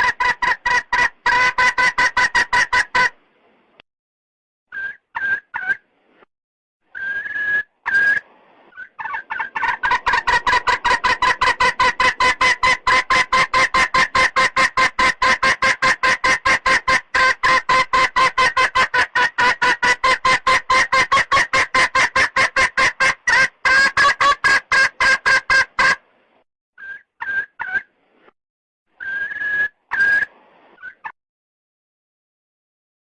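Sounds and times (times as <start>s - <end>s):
hen clucking fast: 0.0s - 3.1s, 8.8s - 26.0s.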